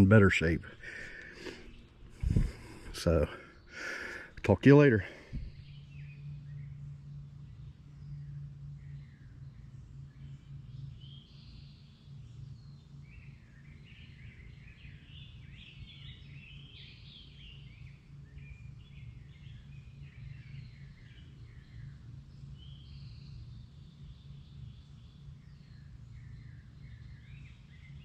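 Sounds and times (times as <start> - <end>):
steady low rumble: 0.0 - 14.0
birds chirping: 0.0 - 28.0.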